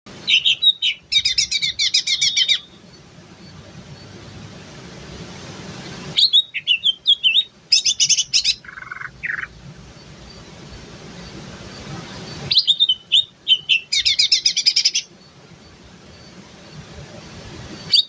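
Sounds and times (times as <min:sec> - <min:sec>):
bird chattering and whistling: 0:00.2 - 0:02.8, 0:06.2 - 0:09.6, 0:12.1 - 0:15.1.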